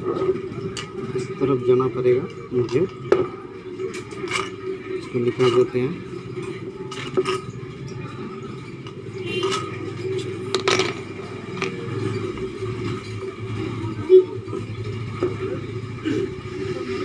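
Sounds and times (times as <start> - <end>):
metal parts clinking and scraping: 3.9 - 4.7, 6.9 - 8.0, 8.8 - 12.2.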